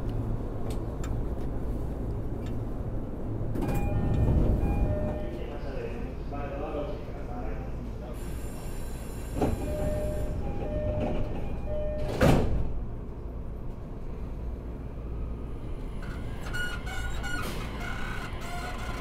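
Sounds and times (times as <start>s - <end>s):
train wheels rumbling: 0.0s - 6.2s
electric train inverter tones: 3.6s - 5.7s, 9.4s - 12.3s.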